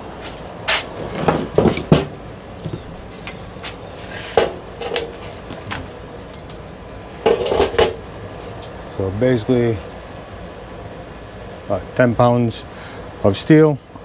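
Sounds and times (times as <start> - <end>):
scrap metal clanking: 0.7 - 6.5, 7.2 - 8.0.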